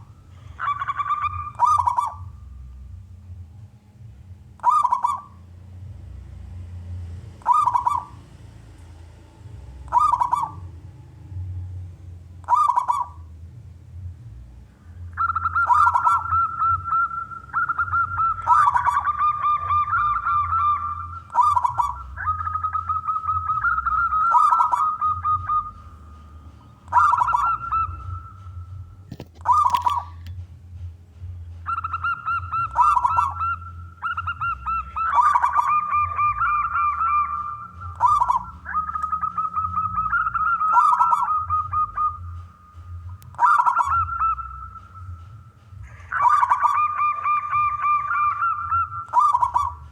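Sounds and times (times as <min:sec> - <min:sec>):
dove cooing: 0:00.0 - 0:02.4, 0:04.6 - 0:05.5, 0:07.4 - 0:08.4, 0:09.9 - 0:10.7, 0:12.4 - 0:13.3, 0:15.2 - 0:30.3, 0:31.7 - 0:49.9
low steady hum: 0:00.0 - 0:49.9.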